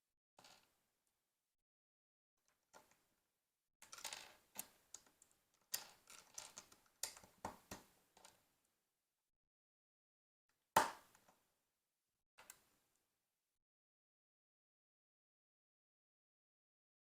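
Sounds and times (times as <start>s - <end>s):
plastic bricks clicking and rattling: 3.8s - 8.4s.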